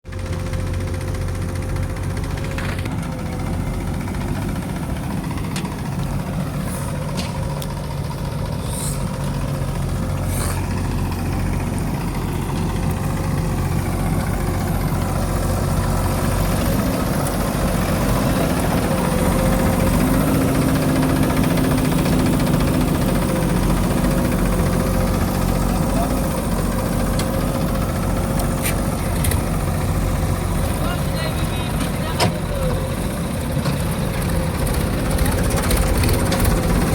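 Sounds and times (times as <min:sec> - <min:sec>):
diesel engine running: 0:00.0 - 0:36.9.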